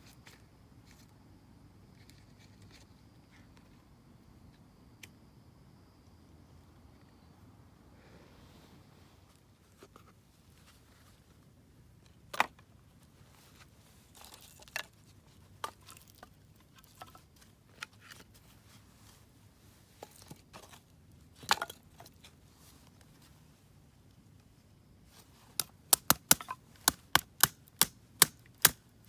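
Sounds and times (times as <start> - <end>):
dry wood snapping and crackling: 25.6 - 28.8.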